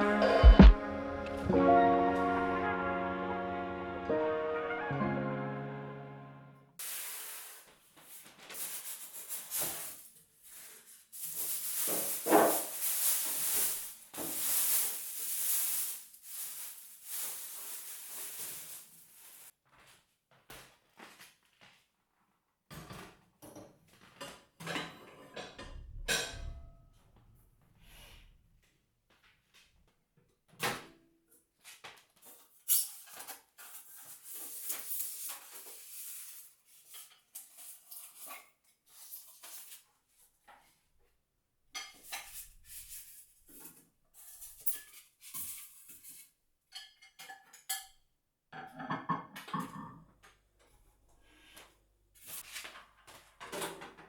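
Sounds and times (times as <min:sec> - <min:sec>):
knocks and clicks: 0:00.2 - 0:01.4
rustling: 0:06.8 - 0:19.5.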